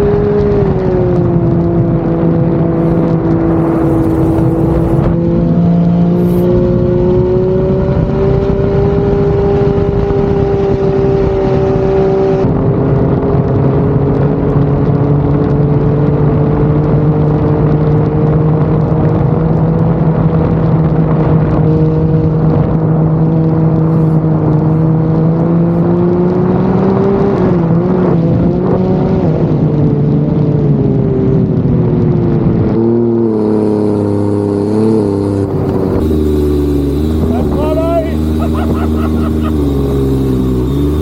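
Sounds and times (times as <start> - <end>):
boat engine running hard: 0.0 - 16.4, 17.0 - 25.8, 32.8 - 41.0.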